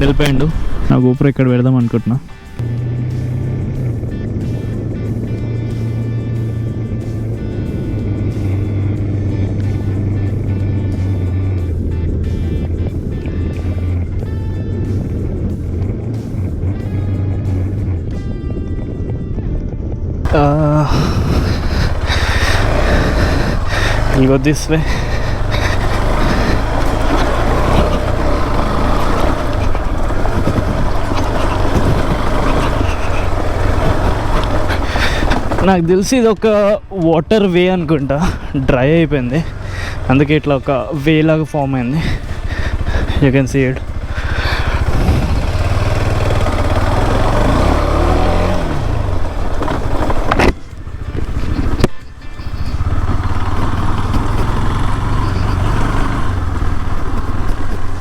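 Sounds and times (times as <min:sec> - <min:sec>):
motorcycle engine running: 0:00.0 - 0:58.0
rushing noise: 0:20.3 - 0:35.9.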